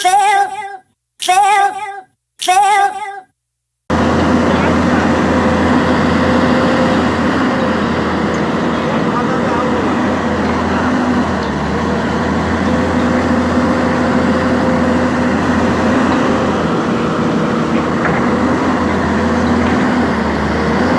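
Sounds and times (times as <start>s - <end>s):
excavator diesel engine running: 3.9s - 20.9s.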